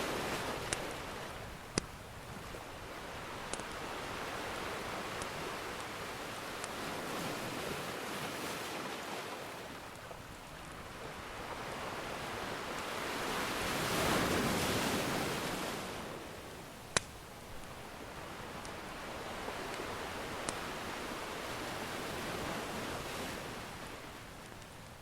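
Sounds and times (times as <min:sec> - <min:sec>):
ocean surf washing on shore: 0:00.0 - 0:25.0
wood fire crackling and popping: 0:00.6 - 0:07.5, 0:16.8 - 0:21.6, 0:24.3 - 0:25.0.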